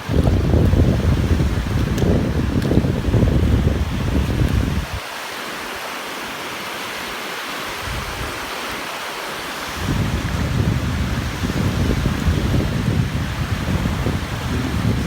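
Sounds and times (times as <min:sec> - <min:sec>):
wind buffeting microphone: 0:00.0 - 0:05.0, 0:07.7 - 0:08.8, 0:09.6 - 0:15.0
sea surf washing on beach: 0:00.0 - 0:15.0.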